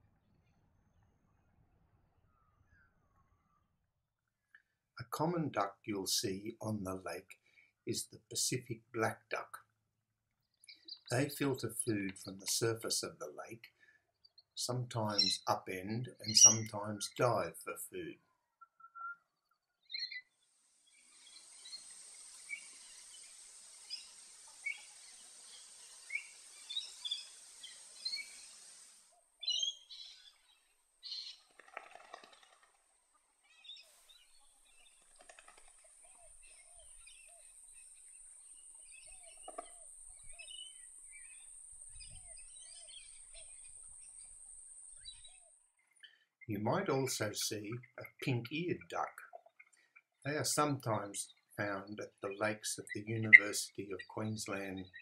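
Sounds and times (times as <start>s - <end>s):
birds chirping: 4.4s - 9.6s, 10.4s - 32.7s, 33.4s - 55.0s
repeated lower bird calls: 10.5s - 20.4s, 29.4s - 32.7s, 33.4s - 55.0s
high-pitched hiss: 11.1s - 13.5s, 14.6s - 17.3s, 20.6s - 29.1s, 46.5s - 48.8s, 50.3s - 54.8s.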